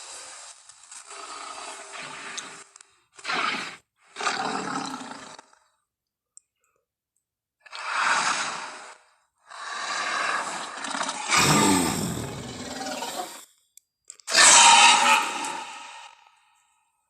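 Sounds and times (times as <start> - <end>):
dinosaur roar: 11.1 - 13.3.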